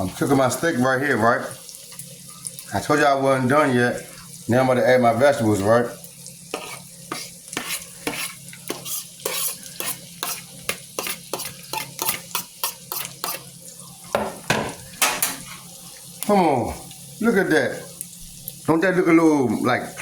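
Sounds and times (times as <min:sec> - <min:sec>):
food sizzling: 0:00.0 - 0:20.0
utensil scraping frying pan: 0:06.5 - 0:13.6, 0:14.2 - 0:15.8.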